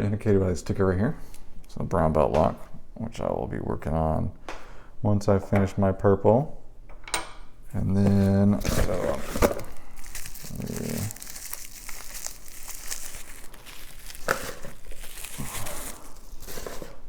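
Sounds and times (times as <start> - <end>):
packaging crinkling and rustling: 7.8 - 17.0.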